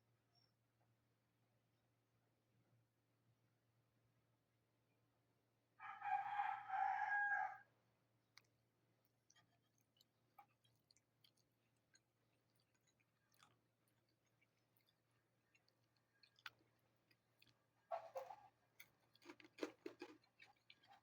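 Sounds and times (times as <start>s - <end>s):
rooster crowing: 5.8s - 7.7s.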